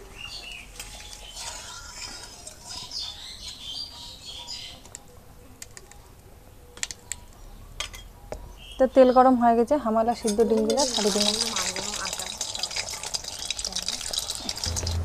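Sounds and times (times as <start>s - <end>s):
birds chirping: 0.0s - 10.3s.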